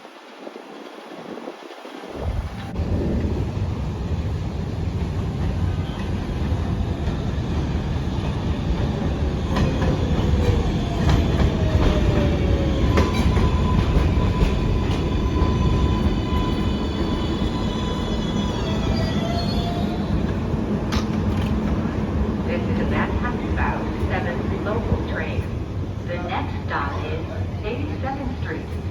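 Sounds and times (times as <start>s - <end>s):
train wheels rumbling on rail: 0.0s - 28.9s
clacks over rail joints: 20.3s - 21.9s.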